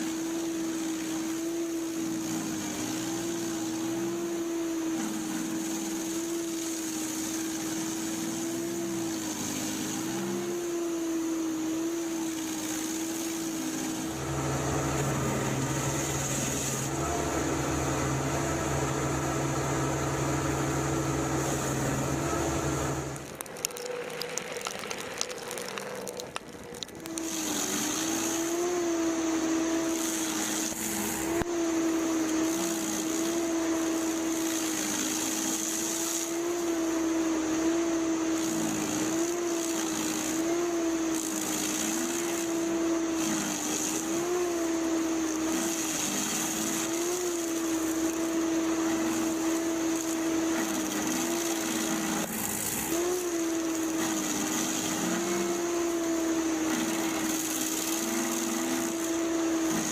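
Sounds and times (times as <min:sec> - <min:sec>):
motor-driven machine humming: 0:00.0 - 0:59.9
clicks and rattling: 0:23.2 - 0:27.3.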